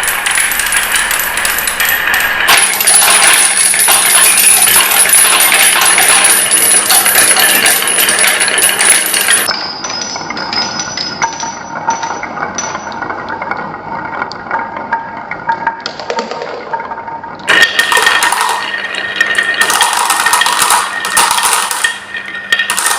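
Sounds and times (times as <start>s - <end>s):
marbles rolling on wooden tracks: 0.0s - 9.6s, 17.5s - 22.9s.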